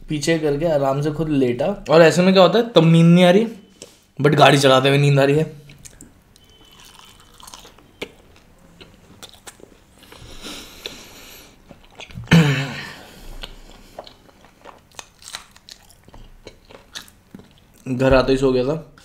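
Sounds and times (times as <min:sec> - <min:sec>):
chewing with wet clicks: 0:05.6 - 0:10.2, 0:11.7 - 0:12.2, 0:13.3 - 0:17.9.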